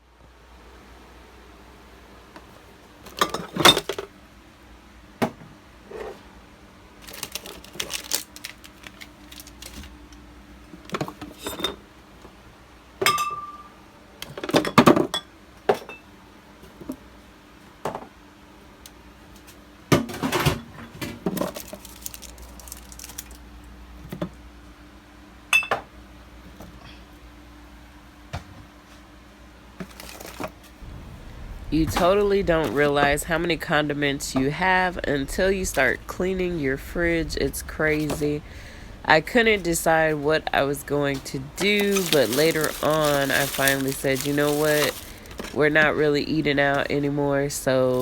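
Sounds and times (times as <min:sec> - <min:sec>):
faint steady hum: 0:00.0 - 0:48.0
bottles and jars clinking: 0:41.6 - 0:45.6.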